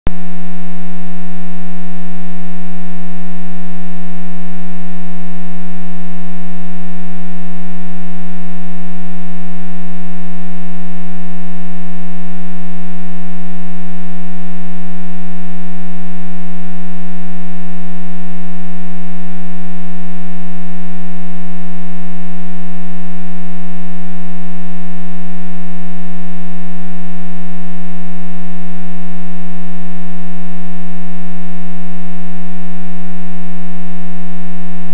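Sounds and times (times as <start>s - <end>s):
electrical buzzing hum: 0.1s - 21.2s.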